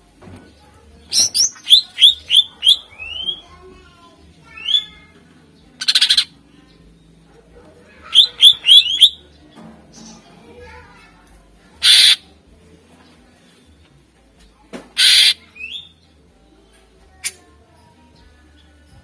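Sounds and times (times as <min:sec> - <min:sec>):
bird singing whistled notes: 0:01.1 - 0:03.4, 0:08.1 - 0:09.2, 0:15.0 - 0:16.0
bird harsh rattle: 0:11.8 - 0:12.2, 0:15.0 - 0:15.4.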